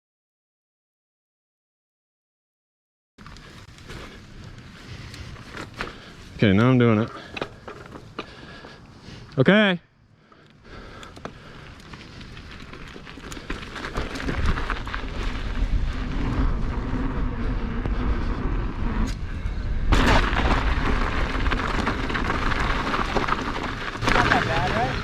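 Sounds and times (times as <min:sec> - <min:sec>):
bike tyre noise on dirt: 0:03.2 - 0:25.0
wind buffeting microphone: 0:11.5 - 0:25.0.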